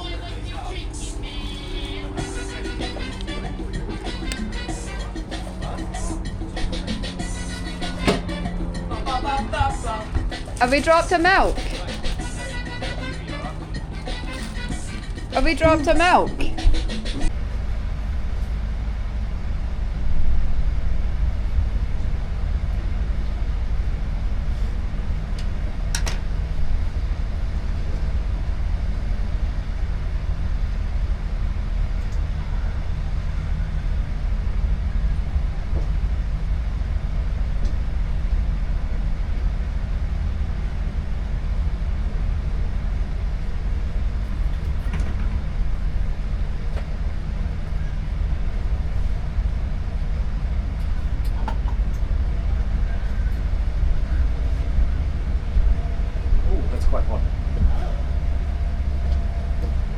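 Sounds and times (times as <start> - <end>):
boat engine running: 0.0 - 59.9
brief knock: 8.0 - 8.4.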